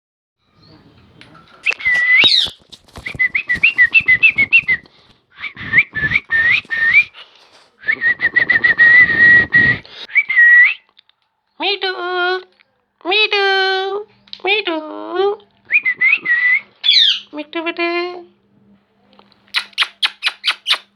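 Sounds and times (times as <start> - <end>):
parrot clicking calls: 19.6 - 20.9
parrot whistling: 19.6 - 20.9.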